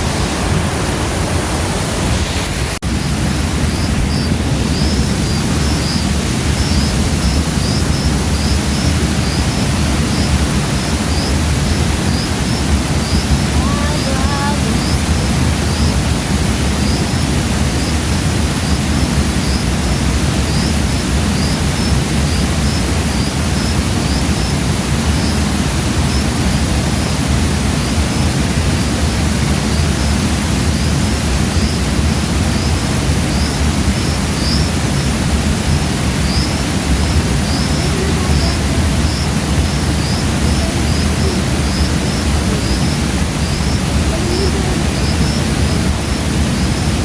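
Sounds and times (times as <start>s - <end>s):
river and waterfall rushing: 0.0s - 47.0s
faint high chirps: 36.2s - 47.0s.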